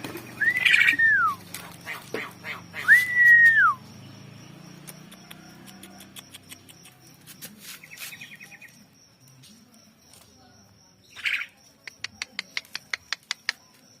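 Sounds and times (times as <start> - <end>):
harsh bird call: 0.2 - 3.8
sharp bird clicks: 4.7 - 7.2, 11.2 - 13.8.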